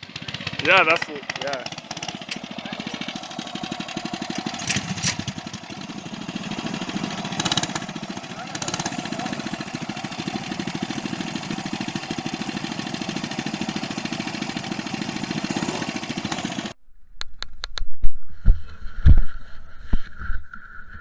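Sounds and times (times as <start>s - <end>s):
minibike engine running: 0.0s - 16.8s.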